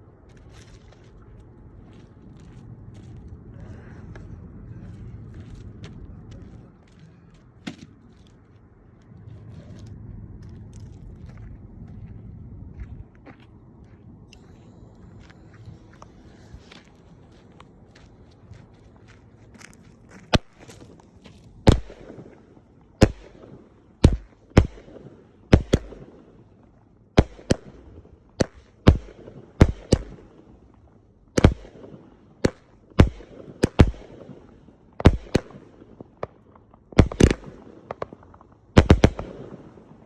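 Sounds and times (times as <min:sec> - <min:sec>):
firework bangs: 0:21.7 - 0:22.4, 0:23.0 - 0:26.2, 0:27.2 - 0:30.6, 0:31.4 - 0:40.0.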